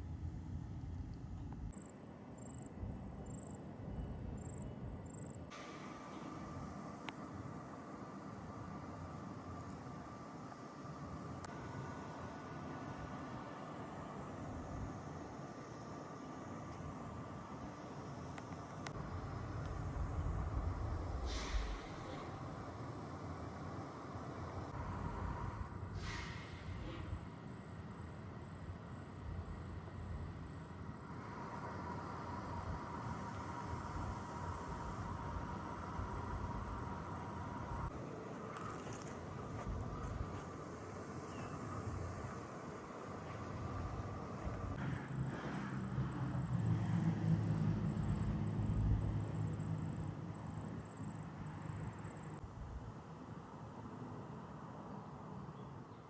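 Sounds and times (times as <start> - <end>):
heavy truck traffic rumble: 11.0 - 52.5
short hiss: 21.2 - 22.2, 25.9 - 27.1
heavy truck driving past: 41.4 - 52.3.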